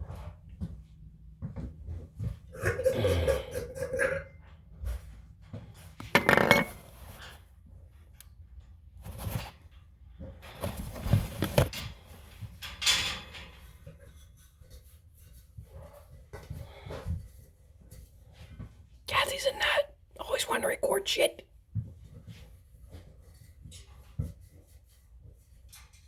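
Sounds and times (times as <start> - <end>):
clinks: 6.0 - 6.8
objects clattering: 6.0 - 7.2.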